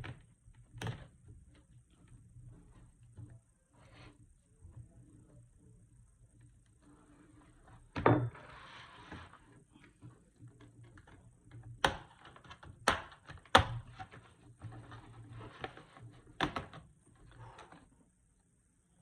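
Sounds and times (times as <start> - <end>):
plastic scraping: 8.3 - 18.0.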